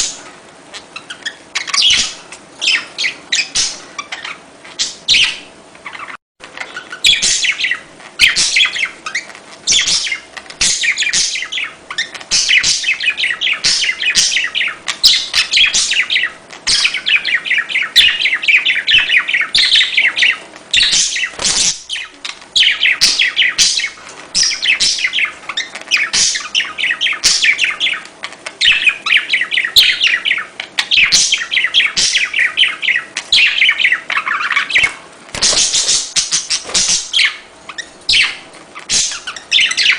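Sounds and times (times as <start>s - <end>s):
budgerigars chattering: 0.8s - 39.9s.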